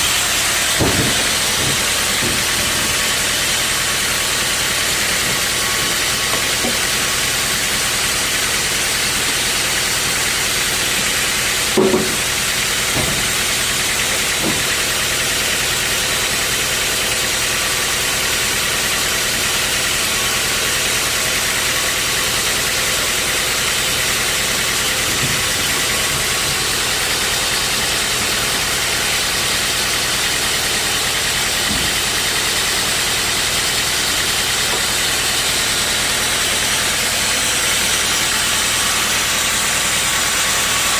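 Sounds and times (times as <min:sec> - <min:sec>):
sawmill machinery running: 0:00.0 - 0:40.9
sharp knocks: 0:00.6 - 0:03.7, 0:11.7 - 0:14.8.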